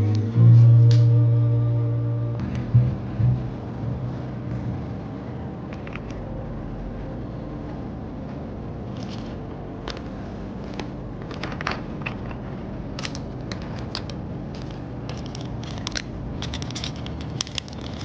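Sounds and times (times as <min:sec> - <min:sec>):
low room hum: 0:00.0 - 0:18.0
small objects clicking and tapping: 0:13.0 - 0:18.0.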